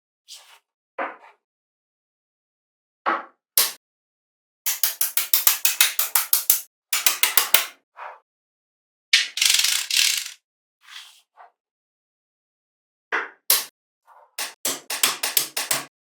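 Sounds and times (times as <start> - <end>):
rapid ratchet-like clicking: 4.7 - 7.7, 9.2 - 10.4, 14.4 - 15.9.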